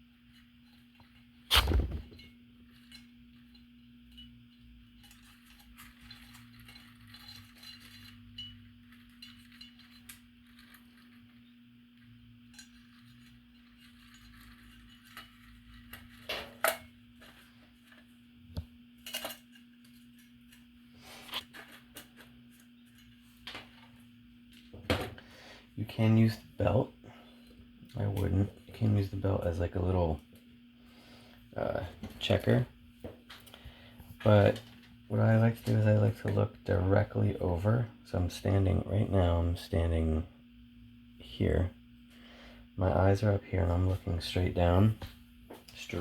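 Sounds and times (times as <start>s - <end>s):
small hard parts clinking: 2.1s - 11.4s.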